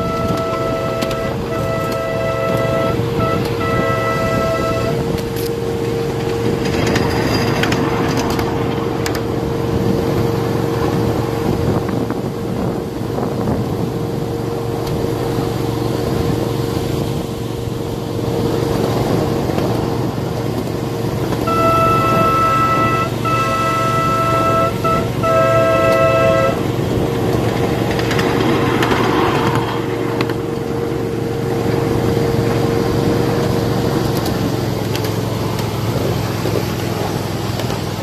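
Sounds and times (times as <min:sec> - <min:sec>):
train horn: 0:00.0 - 0:09.2, 0:21.3 - 0:30.5
miniature train running: 0:00.0 - 0:09.3, 0:21.3 - 0:30.8
train clicks: 0:00.0 - 0:11.2, 0:18.6 - 0:38.0.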